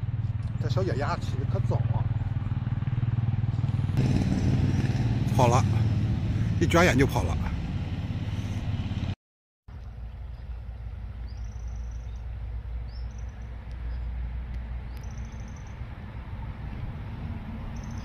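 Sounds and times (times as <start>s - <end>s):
high bird chirps: 14.9s - 15.8s, 17.8s - 18.0s.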